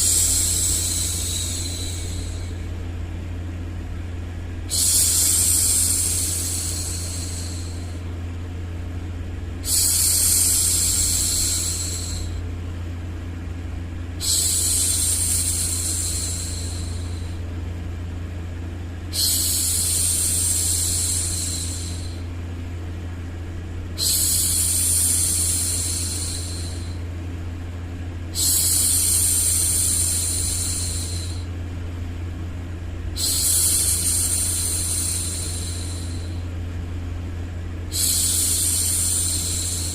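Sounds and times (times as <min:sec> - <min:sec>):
steady low hum: 0:00.0 - 0:39.9
woman shushing: 0:04.7 - 0:08.0, 0:19.1 - 0:22.2, 0:24.0 - 0:27.0.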